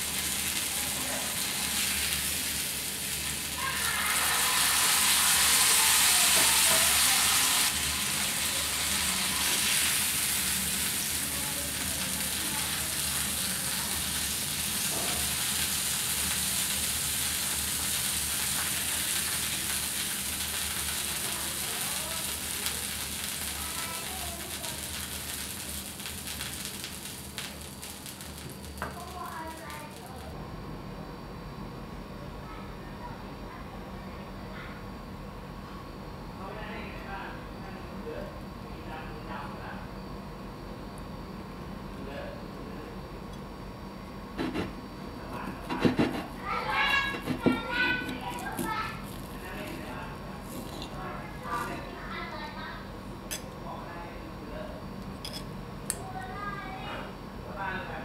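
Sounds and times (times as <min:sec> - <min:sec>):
meat sizzling in a pan: 0:00.0 - 0:30.4, 0:45.3 - 0:52.0.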